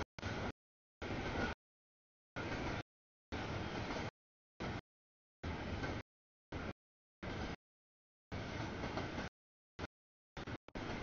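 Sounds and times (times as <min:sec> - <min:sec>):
freight train rumbling past: 0:02.4 - 0:04.8, 0:08.3 - 0:09.3.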